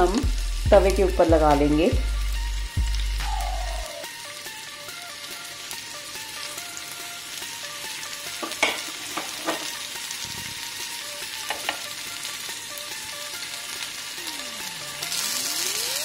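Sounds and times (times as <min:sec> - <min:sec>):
skewers sizzling in hot oil: 0:00.0 - 0:16.0
skewers clicking in pan: 0:08.4 - 0:09.8, 0:11.4 - 0:11.9.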